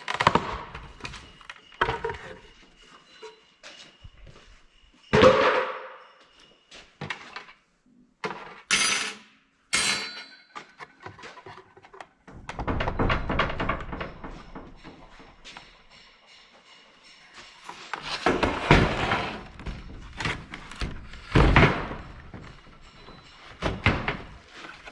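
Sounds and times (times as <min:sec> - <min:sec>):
metal parts knocking and clinking: 0:00.0 - 0:04.2, 0:08.2 - 0:24.9.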